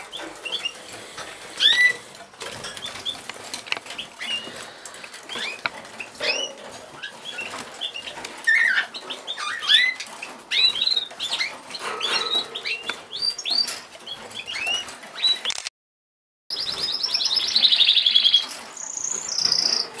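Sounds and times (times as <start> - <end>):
cockatiels chirping: 0.0 - 0.8, 1.6 - 3.3, 3.9 - 4.7, 5.3 - 15.4, 16.6 - 20.0.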